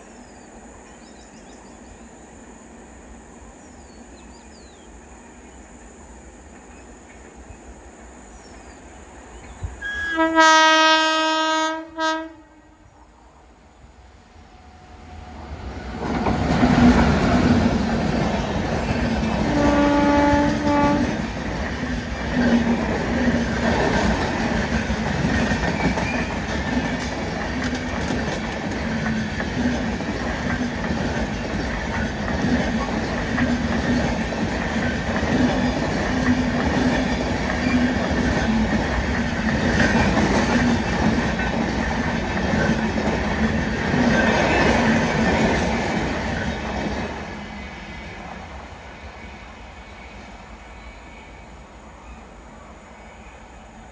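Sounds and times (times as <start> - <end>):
train horn blast: 9.8 - 13.0, 19.4 - 21.3
train coaches rumbling and clattering: 13.8 - 53.9.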